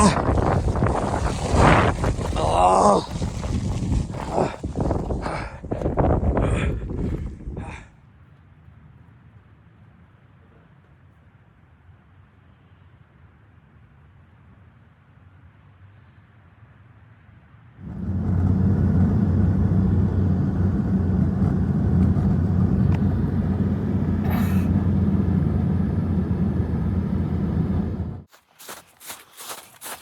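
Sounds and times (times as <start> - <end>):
low rumble with hum: 0.0 - 7.9, 17.8 - 28.3.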